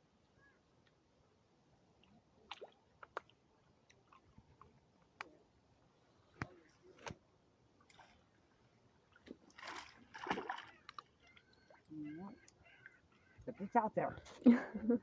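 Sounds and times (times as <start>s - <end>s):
lake water splashing: 2.0s - 4.9s, 7.8s - 14.0s.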